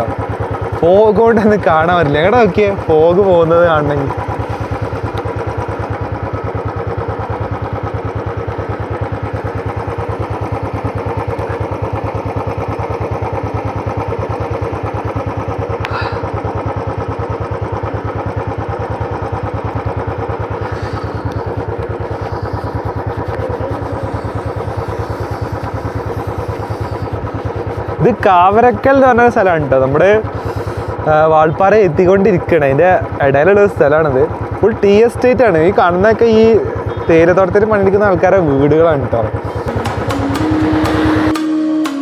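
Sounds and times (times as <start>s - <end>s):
motorcycle engine running: 0.0s - 41.6s.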